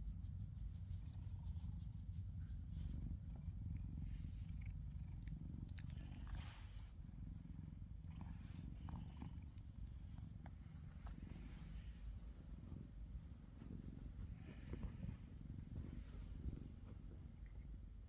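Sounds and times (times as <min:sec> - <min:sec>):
cat purring: 0:00.1 - 0:18.0
faint rustles and clicks: 0:08.2 - 0:18.0.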